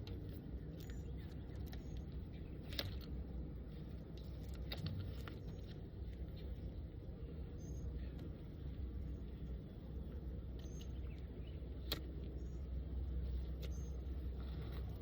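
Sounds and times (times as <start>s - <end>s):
light clicks of hive tools: 0.0s - 6.9s, 7.6s - 15.0s.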